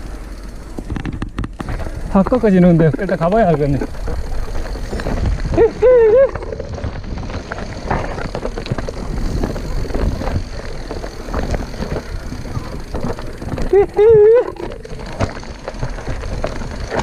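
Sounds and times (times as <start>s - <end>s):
bike clattering over bumps: 0.0s - 17.0s
wind buffeting microphone: 0.7s - 17.0s
person calling out: 5.6s - 6.5s.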